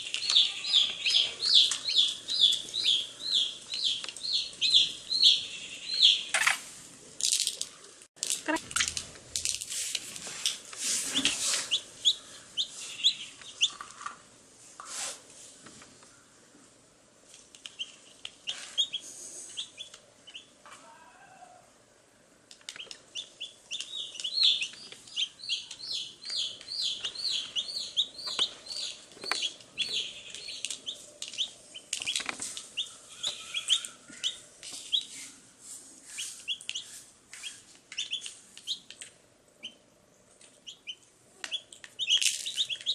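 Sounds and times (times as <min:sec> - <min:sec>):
baby chicks peeping: 0:00.0 - 0:06.6, 0:11.1 - 0:14.1, 0:17.6 - 0:21.6, 0:22.6 - 0:35.3, 0:36.0 - 0:39.0, 0:39.6 - 0:42.9.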